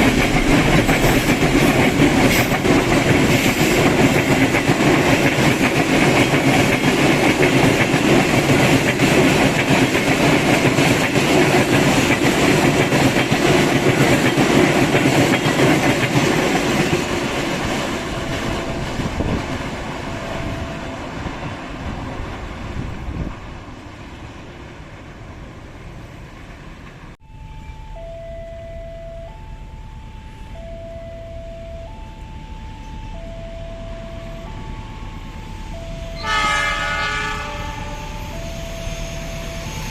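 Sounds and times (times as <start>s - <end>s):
train wheels on rails: 0.0s - 27.2s, 33.8s - 39.9s
level crossing two-tone alarm: 27.3s - 39.9s.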